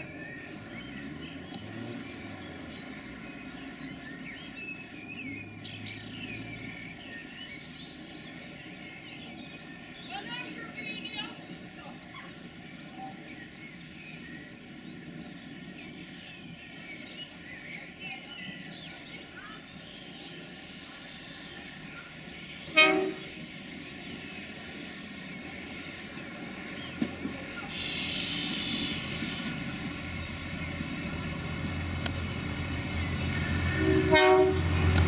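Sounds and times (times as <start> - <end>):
train engine and wheel noise: 0.0 - 35.0
train horn blast: 22.7 - 23.3, 33.6 - 35.0.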